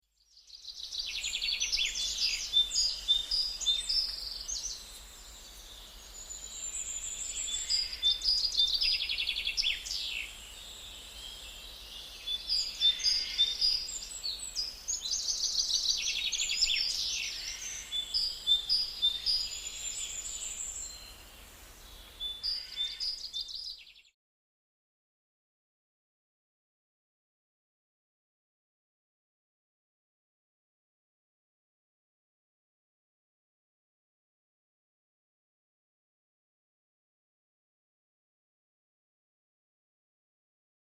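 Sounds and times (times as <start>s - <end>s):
songbirds chirping and singing: 0.3s - 24.1s.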